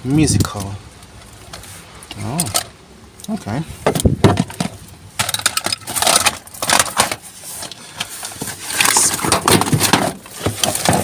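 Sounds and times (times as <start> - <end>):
plastic rustling and clattering: 3.8 - 11.0
rummaging through rubbish: 3.9 - 11.0.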